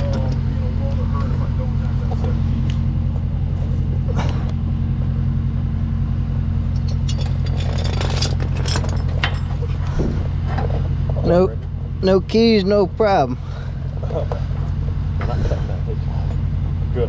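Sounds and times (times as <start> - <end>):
truck engine idling: 0.0 - 17.0
sharp clinks and knocks: 6.7 - 9.7.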